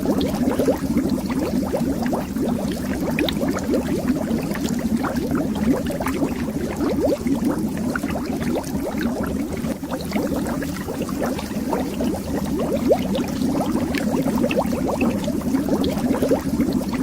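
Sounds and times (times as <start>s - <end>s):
air bubbles rising under water: 0.0s - 17.0s.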